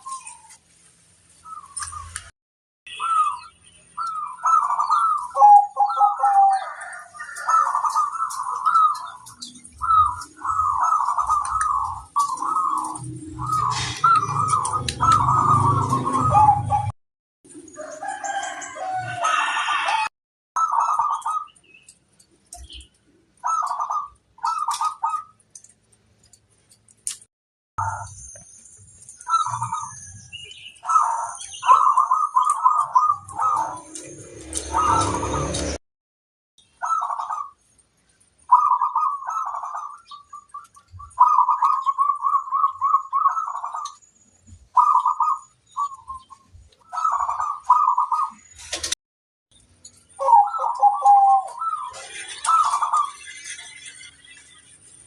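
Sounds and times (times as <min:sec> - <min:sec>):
doves cooing: 0:02.9 - 0:16.9, 0:17.8 - 0:21.6, 0:22.6 - 0:25.4, 0:29.2 - 0:35.8, 0:36.8 - 0:37.6, 0:38.5 - 0:49.0, 0:50.2 - 0:53.8.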